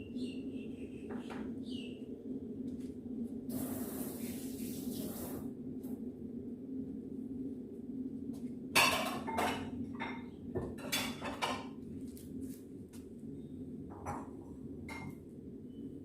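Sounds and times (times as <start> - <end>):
steady low hum: 0.0 - 16.0
dishes clattering: 8.8 - 11.8.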